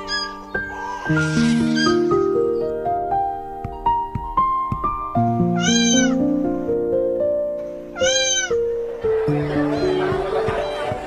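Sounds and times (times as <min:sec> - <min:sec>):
cat meowing: 0:00.0 - 0:02.1, 0:05.5 - 0:06.2, 0:08.0 - 0:08.6
background music of sustained notes: 0:00.0 - 0:11.0.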